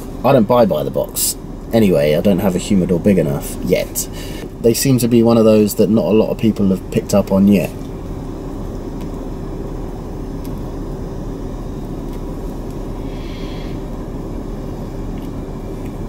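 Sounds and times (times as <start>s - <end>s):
car engine humming: 0.0s - 16.0s
soft breath: 4.1s - 4.5s, 13.0s - 13.9s.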